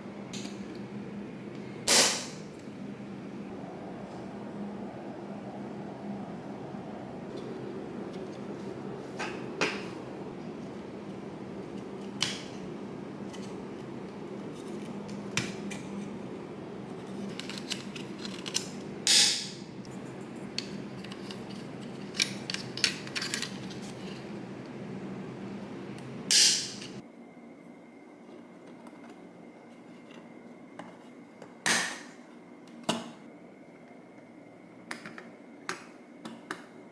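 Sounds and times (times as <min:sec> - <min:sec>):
steady low hum: 0:00.0 - 0:31.4
tools and parts clicking: 0:17.2 - 0:19.5, 0:20.5 - 0:24.1.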